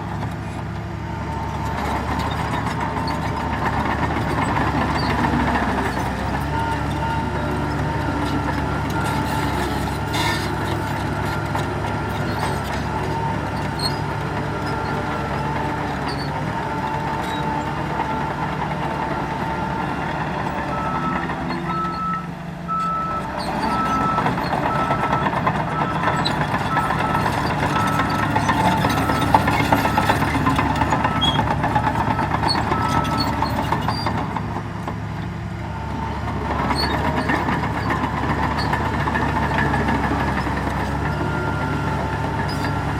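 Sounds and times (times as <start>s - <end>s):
heavy diesel engines running: 0.0s - 42.9s
reversing alarm beeping: 17.0s - 33.6s.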